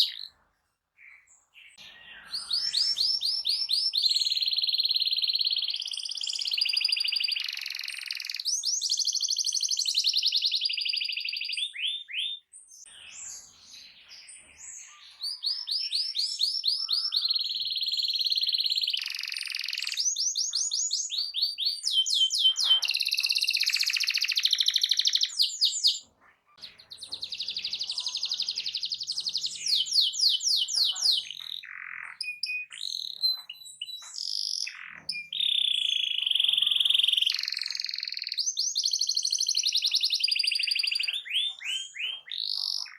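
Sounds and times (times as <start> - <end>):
canary singing trills: 0.0 - 42.9.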